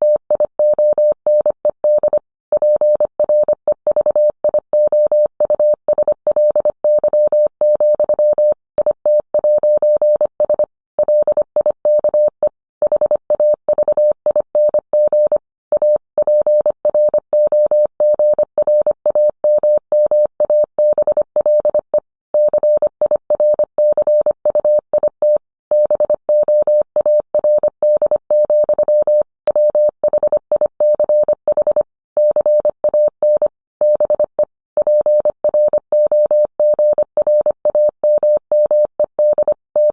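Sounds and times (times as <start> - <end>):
morse code tone: 22.4 - 39.9.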